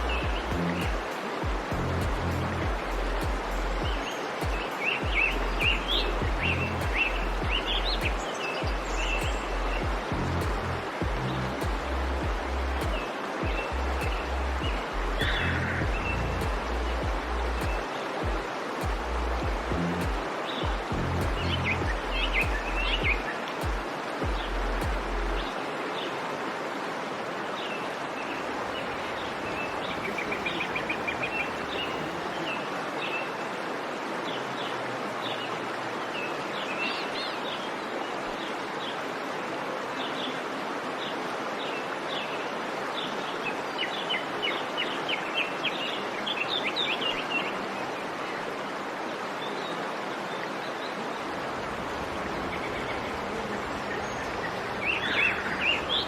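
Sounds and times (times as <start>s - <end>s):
small birds chirping: 0.0s - 11.8s, 12.8s - 17.9s, 28.6s - 32.7s, 51.5s - 56.0s
steady rushing hiss: 0.0s - 25.5s, 28.5s - 32.8s, 51.2s - 56.0s.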